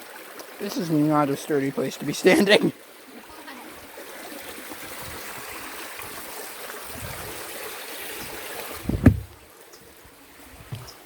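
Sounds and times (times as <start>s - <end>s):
stream water running: 0.0s - 11.0s
low thump: 8.8s - 9.4s.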